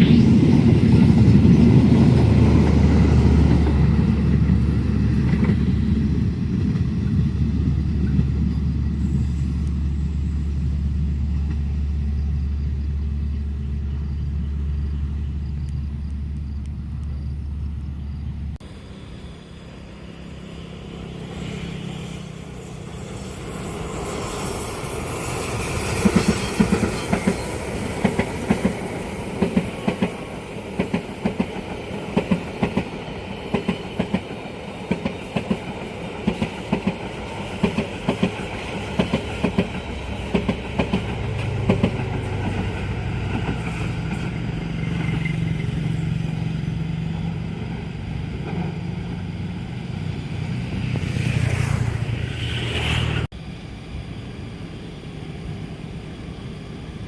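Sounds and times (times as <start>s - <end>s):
train wheels clacking on rail joints: 24.4s - 45.9s.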